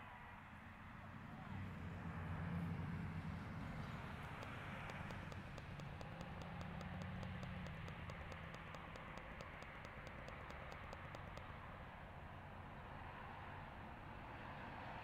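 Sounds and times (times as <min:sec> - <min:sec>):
rapid even ticking: 0:04.0 - 0:11.6.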